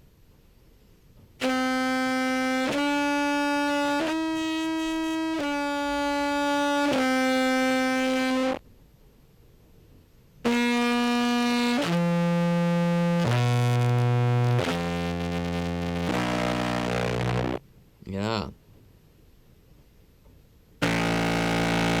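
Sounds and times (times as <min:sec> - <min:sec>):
contrabass clarinet notes: 0:01.4 - 0:08.6, 0:10.5 - 0:17.6, 0:20.8 - 0:22.0.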